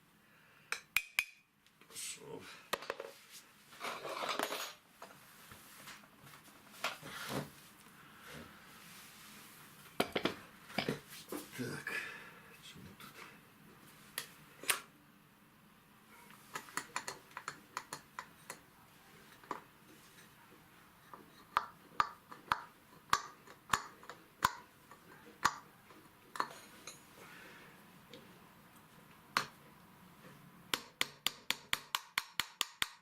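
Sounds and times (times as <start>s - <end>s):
sharp metallic clicks from hand tools: 0.7s - 1.4s.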